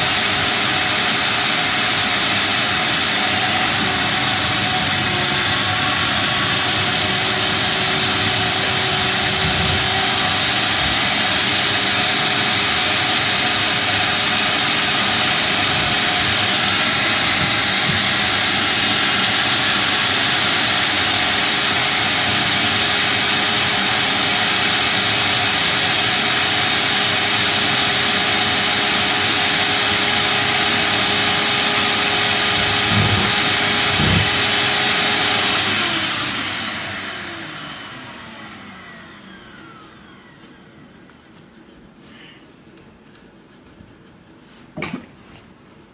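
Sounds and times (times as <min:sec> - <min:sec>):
machinery rushing noise: 0:03.2 - 0:11.3, 0:31.8 - 0:36.6.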